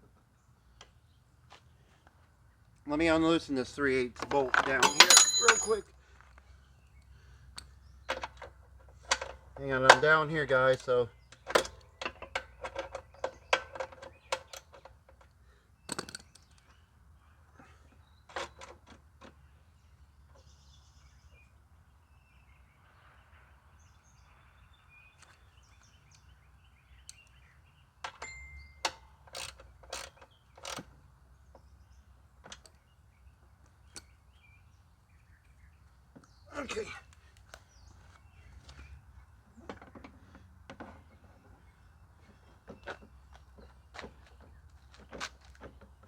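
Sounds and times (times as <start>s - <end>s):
metallic clicks of hand tools: 10.7s - 16.7s, 28.1s - 30.9s.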